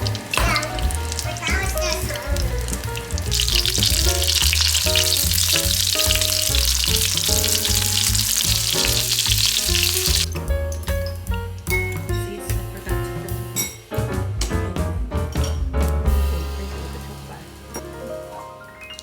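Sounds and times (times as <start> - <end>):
meat patties sizzling in a pan: 0.0 - 10.3
background music with bass line: 0.0 - 19.0.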